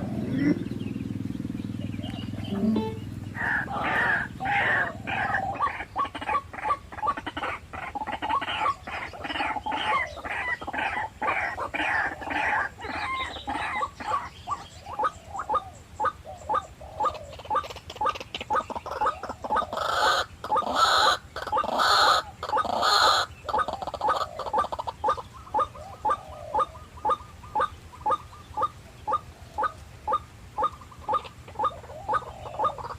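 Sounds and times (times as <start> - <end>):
waterhens croaking calls: 0.0 - 0.8, 2.0 - 32.9
harsh loud bird calls: 0.0 - 32.9.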